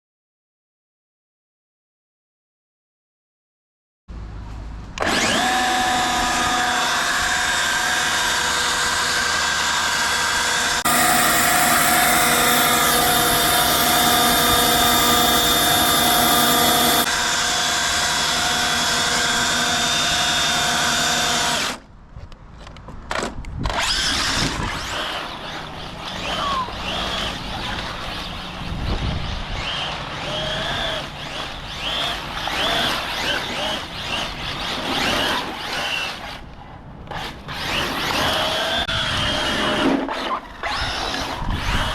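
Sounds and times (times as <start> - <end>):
electric motor high whine: 5.0 - 21.8, 23.8 - 36.2, 37.6 - 41.9
rc car motor whines: 5.0 - 21.8, 23.6 - 36.4, 37.1 - 41.9.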